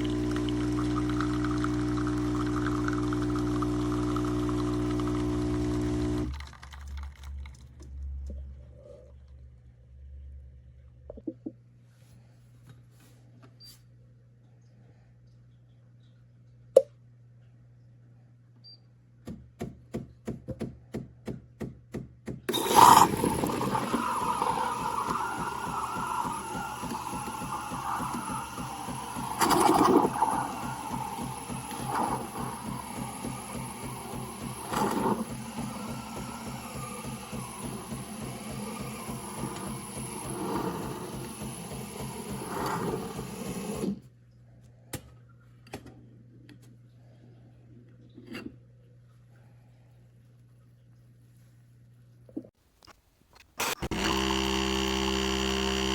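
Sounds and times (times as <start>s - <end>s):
espresso machine whirring and pumping: 0.0s - 7.0s, 22.5s - 44.0s, 53.6s - 55.9s
espresso machine clicking: 22.5s - 40.1s.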